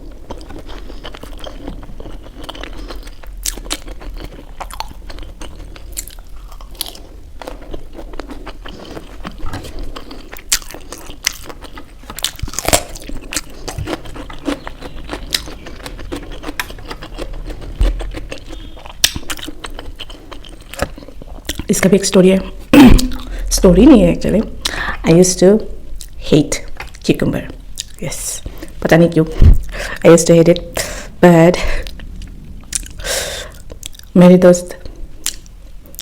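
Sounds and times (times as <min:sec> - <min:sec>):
crunchy bites and chewing: 0:00.0 - 0:21.7.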